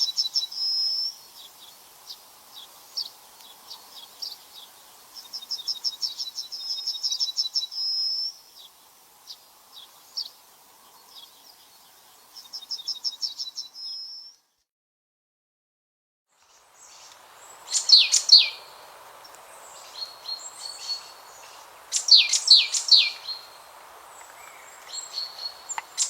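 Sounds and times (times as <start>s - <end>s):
bird chirps: 0.0s - 11.6s, 12.3s - 14.6s, 16.4s - 26.0s
songbird trilling: 16.8s - 26.0s.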